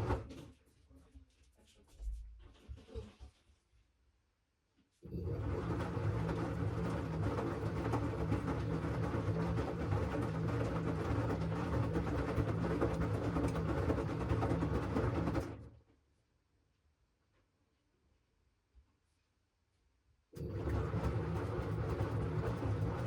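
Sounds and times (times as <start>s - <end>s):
washing machine motor humming: 5.1s - 15.7s, 20.4s - 23.0s.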